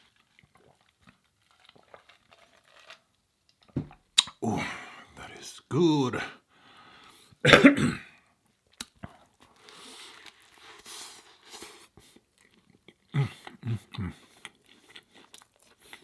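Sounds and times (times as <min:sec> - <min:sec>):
chewing food: 0:00.0 - 0:04.4, 0:08.6 - 0:16.0.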